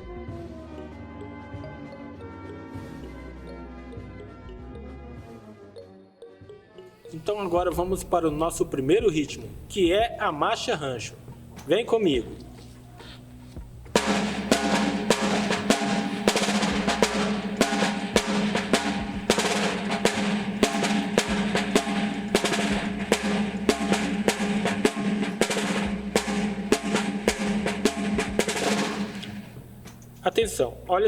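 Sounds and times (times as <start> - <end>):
snare drum rhythm with rolls: 13.8 - 30.7.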